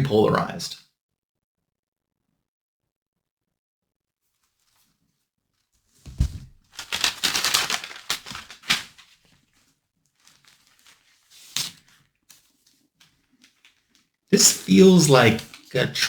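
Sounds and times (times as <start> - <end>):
thump: 6.1 - 6.6
wrapping paper crinkling: 6.1 - 16.0.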